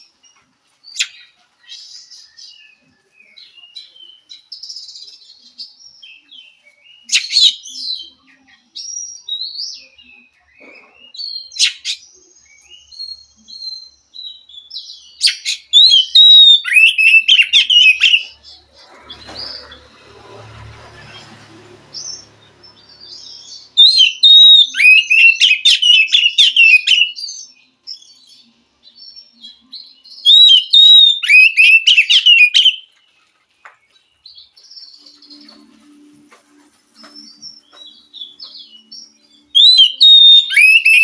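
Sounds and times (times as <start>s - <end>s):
bird singing whistles and trills: 11.1s - 18.4s, 23.0s - 32.9s, 37.0s - 41.0s.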